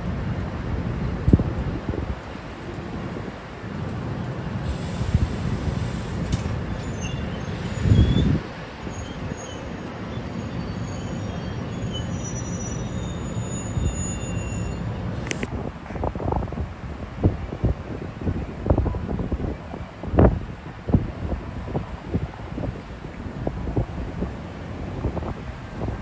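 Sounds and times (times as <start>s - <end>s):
train rumbling: 0.0s - 26.0s
burst of hiss: 4.6s - 8.5s
high-pitched wheel squeals: 6.7s - 15.5s.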